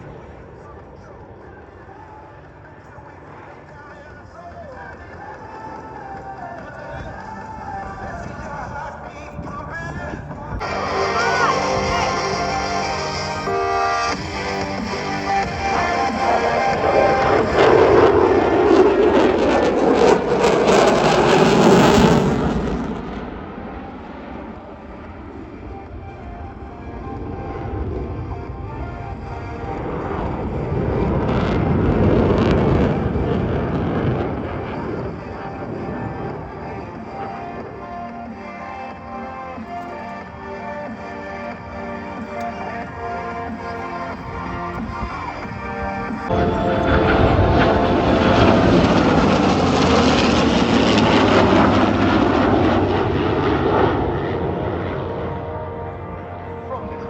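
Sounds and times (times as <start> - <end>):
jet roar passing: 10.6 - 38.5, 40.4 - 57.0.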